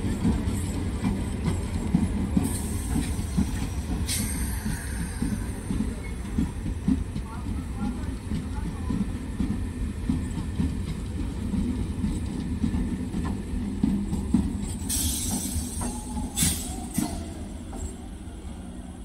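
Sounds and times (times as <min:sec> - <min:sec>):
train rumbling along track: 0:00.0 - 0:19.0.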